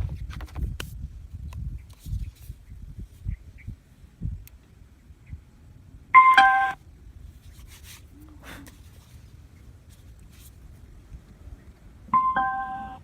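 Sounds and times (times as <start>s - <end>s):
two-note falling chime: 12.2s - 13.0s.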